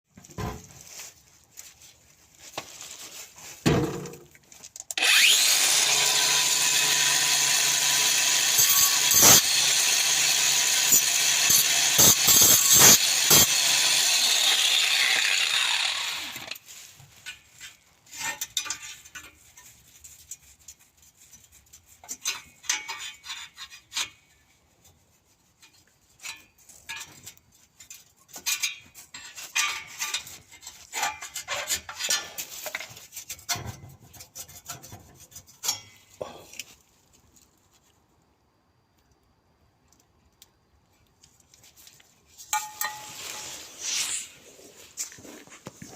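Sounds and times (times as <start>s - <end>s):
angle grinder cutting metal pipe: 5.0s - 16.6s.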